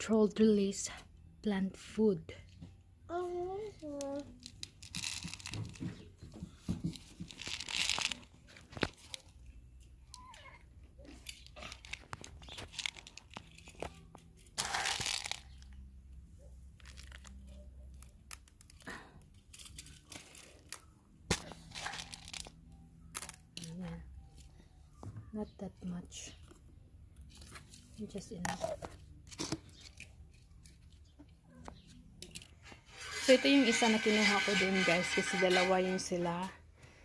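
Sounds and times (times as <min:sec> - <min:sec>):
packaging crinkling and rustling: 0:04.3 - 0:06.1, 0:06.8 - 0:09.5, 0:11.0 - 0:15.8, 0:16.7 - 0:24.4.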